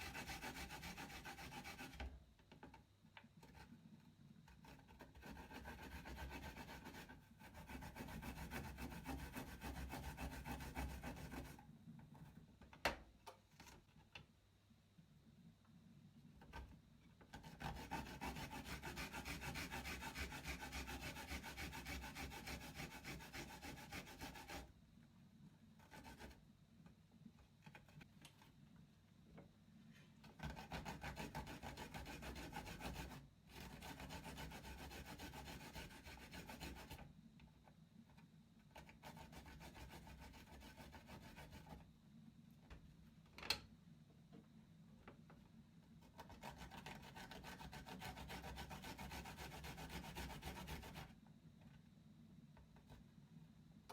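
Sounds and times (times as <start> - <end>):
garlic grating on a grater: 0.0 - 2.0, 4.5 - 11.6, 17.3 - 24.7, 30.2 - 37.0, 38.8 - 41.8, 46.0 - 51.1.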